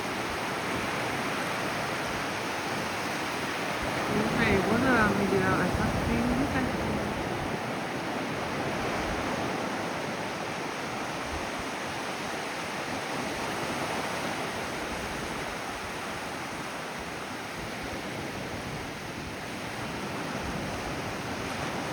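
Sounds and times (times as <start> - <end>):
ocean waves breaking on shore: 0.0 - 21.9.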